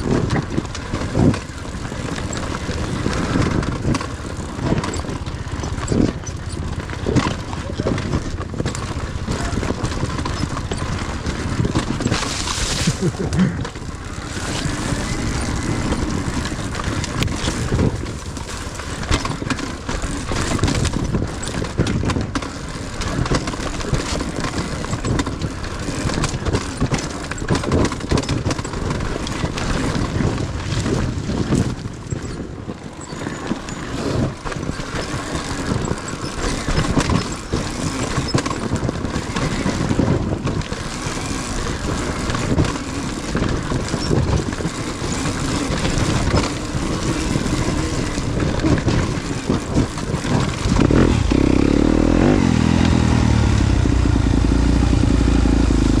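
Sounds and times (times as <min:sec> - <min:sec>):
dirt bike engine revving: 0:12.0 - 0:17.8, 0:45.1 - 0:56.0.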